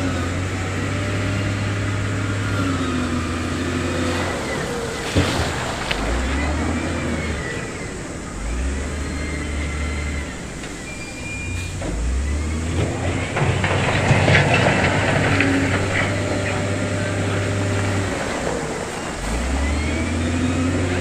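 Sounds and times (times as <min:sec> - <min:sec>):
diesel machinery running: 0:00.0 - 0:21.0
stone scraping and clattering: 0:12.8 - 0:18.2.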